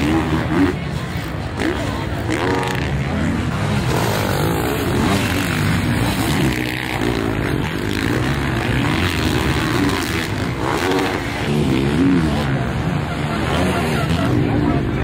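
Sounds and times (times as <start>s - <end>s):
dirt bike engines revving: 0.0s - 15.0s
noisy background: 0.0s - 15.0s.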